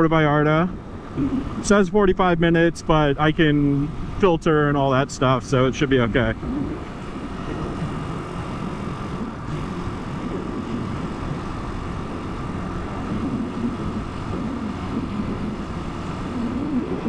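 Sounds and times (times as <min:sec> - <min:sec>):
motorcycle engine running: 0:00.0 - 0:17.0
wind noise on microphone: 0:00.6 - 0:04.7.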